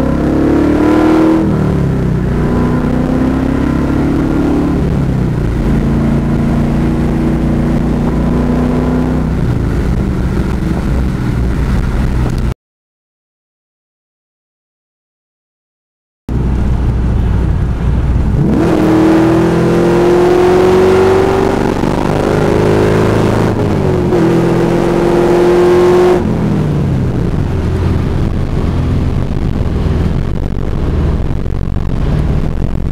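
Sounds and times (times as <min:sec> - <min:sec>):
car engine deep rumble: 0:00.0 - 0:12.6, 0:16.3 - 0:32.9.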